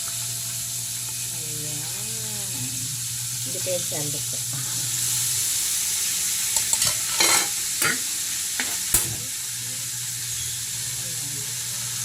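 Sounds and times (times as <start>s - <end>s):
chicken sizzling in hot oil: 0.0s - 12.0s
utensil scraping and knocking pan: 6.7s - 9.2s.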